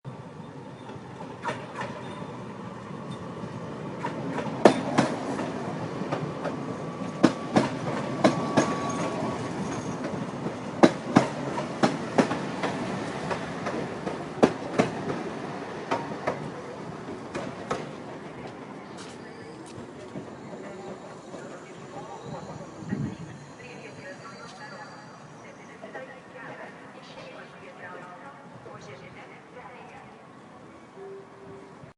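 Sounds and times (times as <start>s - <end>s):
train rumbling on rails: 0.1s - 30.8s
wheels clacking over rail joints: 0.8s - 2.4s, 3.1s - 19.2s.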